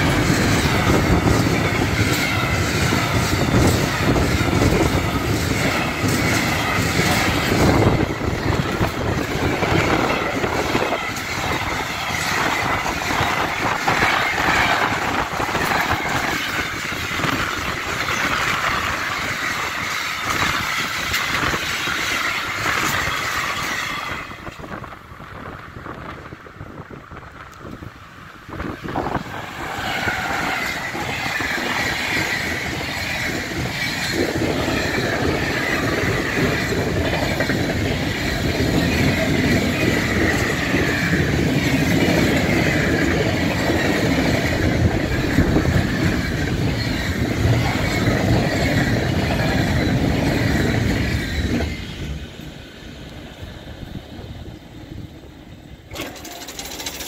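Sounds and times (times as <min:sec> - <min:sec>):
train wheels rumbling on rails: 0:00.0 - 0:57.0
high wavering wheel squeal: 0:28.8 - 0:52.2.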